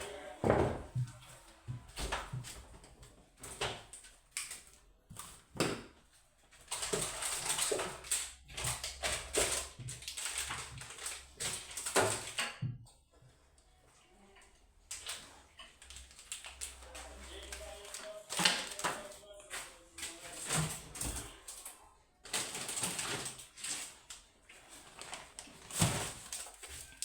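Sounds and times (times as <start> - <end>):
items knocking and scraping: 0.0 - 13.4, 14.9 - 27.0.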